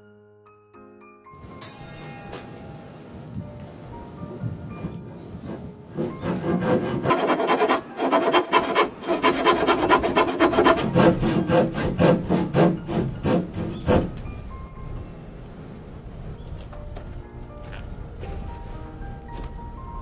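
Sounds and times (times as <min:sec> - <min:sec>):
hand tool strokes on wood: 0:05.4 - 0:14.3.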